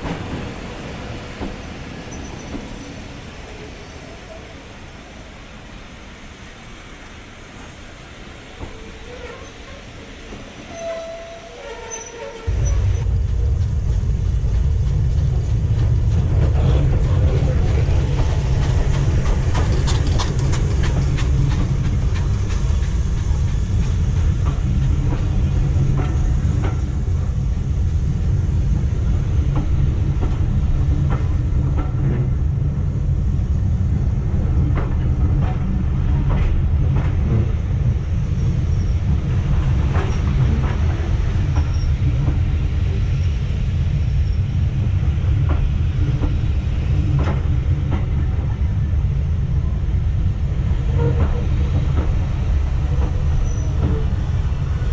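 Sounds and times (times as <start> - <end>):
wheels clicking over rail joints: 0.0 - 13.0, 18.2 - 27.1
train rumbling on track: 0.0 - 54.9.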